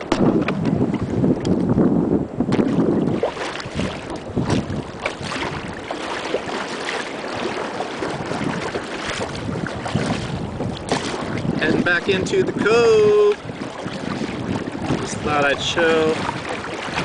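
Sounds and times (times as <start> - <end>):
water splashing around a kayak: 0.0 - 17.0
wind buffeting the microphone: 0.0 - 17.0.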